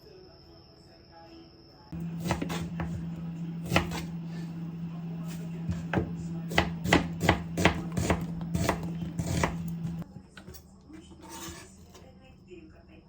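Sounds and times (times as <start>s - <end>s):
knife chopping on cutting board: 2.0s - 4.6s, 5.2s - 10.0s
steady low hum: 2.0s - 10.1s.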